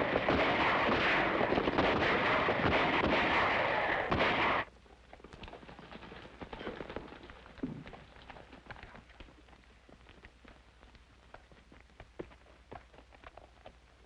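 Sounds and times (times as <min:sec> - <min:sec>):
rifle and pistol gunfire: 0:00.0 - 0:04.7.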